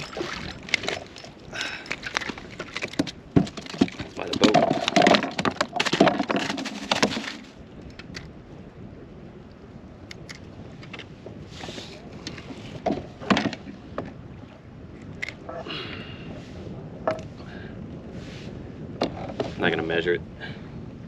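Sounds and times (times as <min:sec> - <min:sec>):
water splashing: 0:00.0 - 0:07.6
knocks and rattles on kayak: 0:00.0 - 0:08.4, 0:10.2 - 0:15.6, 0:17.0 - 0:17.5, 0:18.9 - 0:19.8.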